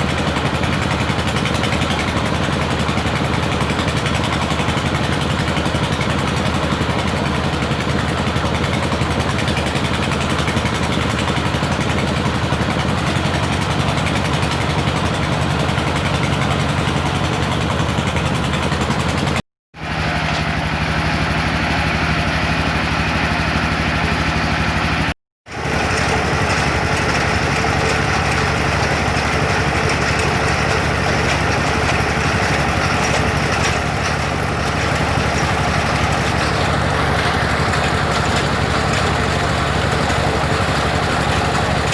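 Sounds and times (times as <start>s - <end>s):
drilling rig motor humming: 23.9s - 41.9s.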